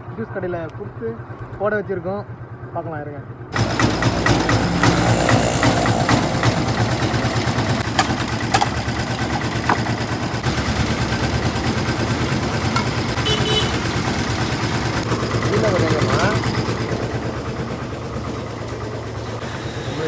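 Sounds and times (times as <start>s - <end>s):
juice crusher motor throbbing: 3.5s - 20.0s
sharp clicks and knocks: 3.6s - 10.5s, 12.3s - 13.2s.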